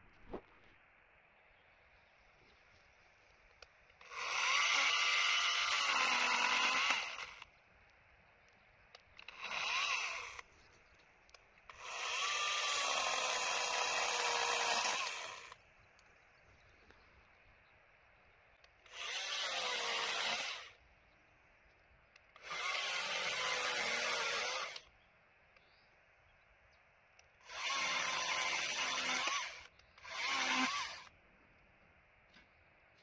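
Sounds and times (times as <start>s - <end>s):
electric chainsaw cutting wood: 4.0s - 7.5s, 9.2s - 10.5s, 11.7s - 15.6s, 18.8s - 20.8s, 22.4s - 24.9s, 27.4s - 31.1s.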